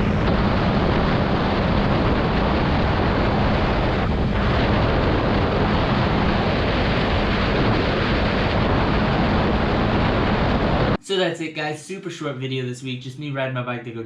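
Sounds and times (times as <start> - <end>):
wind rushing on microphone: 0.0 - 11.0.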